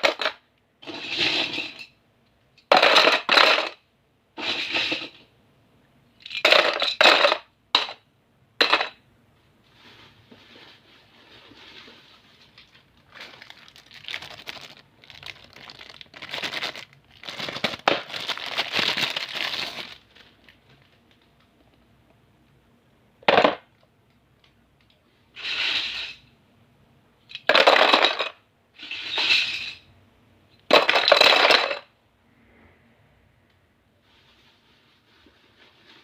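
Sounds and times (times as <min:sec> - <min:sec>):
plastic toys rattling: 0:00.0 - 0:01.9, 0:02.6 - 0:03.8, 0:06.2 - 0:07.5, 0:10.8 - 0:21.5, 0:27.3 - 0:29.8, 0:30.7 - 0:31.9
plastic packaging crinkling: 0:11.2 - 0:21.5.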